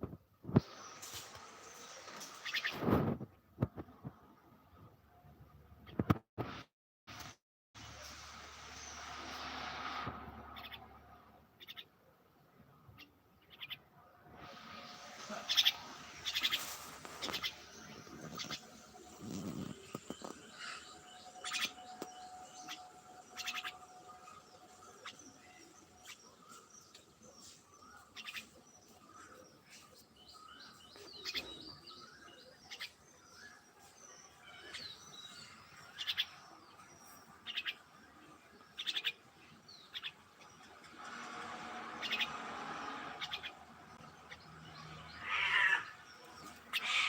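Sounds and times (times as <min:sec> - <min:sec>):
birds chirping: 0:00.6 - 0:03.0, 0:08.0 - 0:47.0
harsh bird calls: 0:14.7 - 0:47.0.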